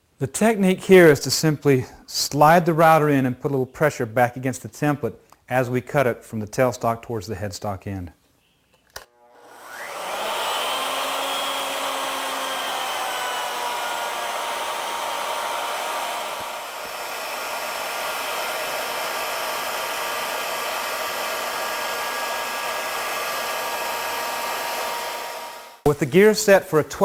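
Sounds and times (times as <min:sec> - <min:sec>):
wood router cutting wood: 0:09.1 - 0:25.9.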